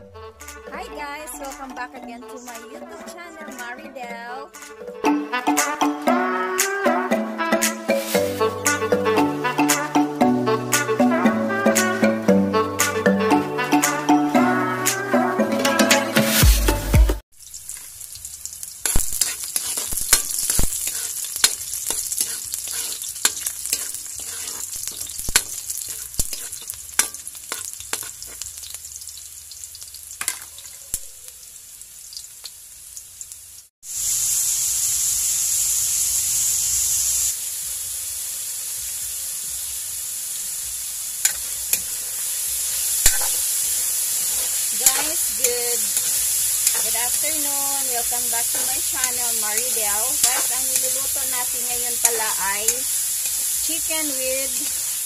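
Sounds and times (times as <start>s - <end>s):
garlic sizzling in hot oil: 7.3s - 10.1s, 17.3s - 55.0s
chicken frying in oil: 17.3s - 55.0s
spatula scraping and tapping pan: 18.8s - 28.6s, 41.2s - 41.9s, 43.0s - 43.4s, 44.2s - 53.4s.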